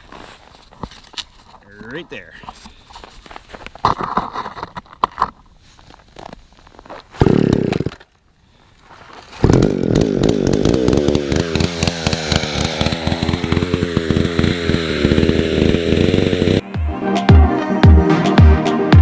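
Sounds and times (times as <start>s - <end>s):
power saw cutting ice: 9.4s - 16.6s.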